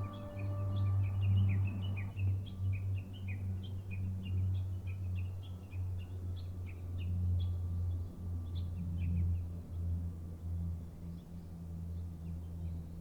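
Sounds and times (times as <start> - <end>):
small birds chirping: 0.0 - 9.4
steady low hum: 0.0 - 13.0.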